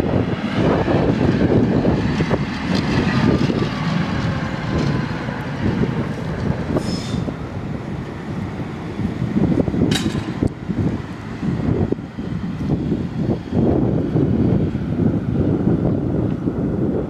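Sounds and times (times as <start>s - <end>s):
tram wheels rumbling on rails: 0.0s - 17.0s
high wheel squeal: 6.7s - 7.4s.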